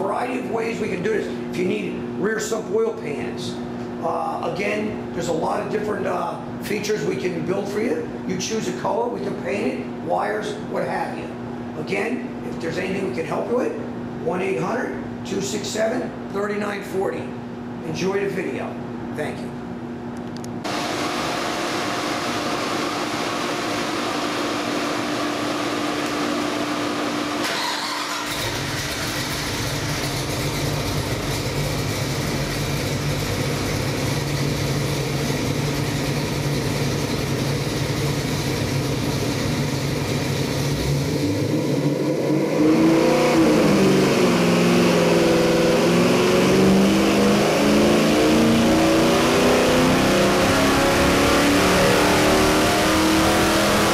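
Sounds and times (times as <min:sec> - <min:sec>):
engine running and revving: 0:20.7 - 0:53.9.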